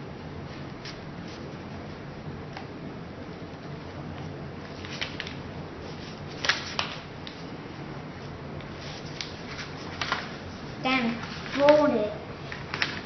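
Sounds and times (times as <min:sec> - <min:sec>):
low background hum: 0:00.0 - 0:13.0
paper crinkling and folding: 0:04.6 - 0:07.5, 0:08.7 - 0:13.0.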